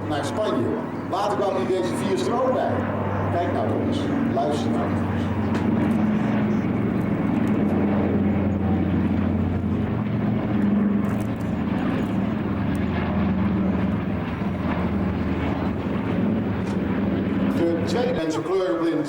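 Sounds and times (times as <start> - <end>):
propeller aircraft engines droning: 0.0 - 19.0.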